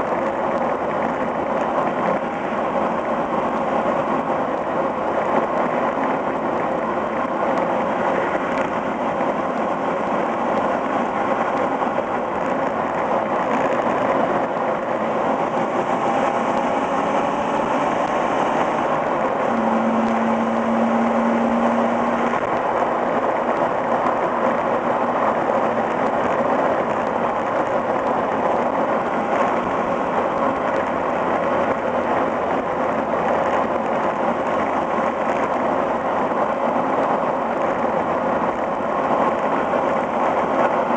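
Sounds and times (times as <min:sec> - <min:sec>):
car exhaust while driving: 0:00.0 - 0:40.9
road noise: 0:00.0 - 0:40.9
wind noise: 0:00.0 - 0:40.9
short steady hum: 0:19.5 - 0:21.6.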